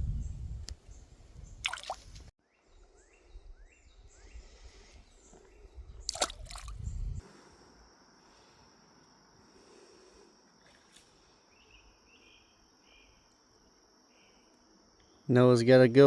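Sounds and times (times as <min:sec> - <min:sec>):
splashes in creek water: 0:01.6 - 0:02.3, 0:06.0 - 0:07.0.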